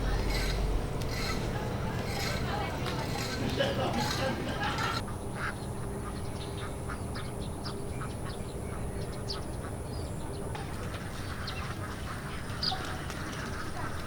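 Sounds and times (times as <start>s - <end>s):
quack-like animal calls: 0.0s - 2.5s
steady background noise: 0.0s - 14.0s.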